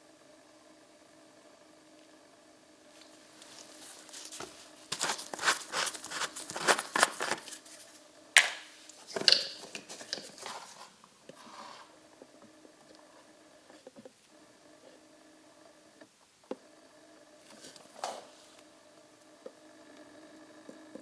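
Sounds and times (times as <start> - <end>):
rustling and crinkling handling noise: 3.0 - 11.9, 17.5 - 18.7
short scrapes and clicks: 3.4 - 11.9.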